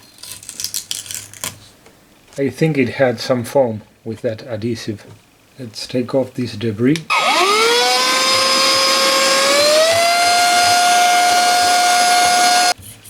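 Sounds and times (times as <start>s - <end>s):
small electric motor tool whining: 7.1s - 12.8s.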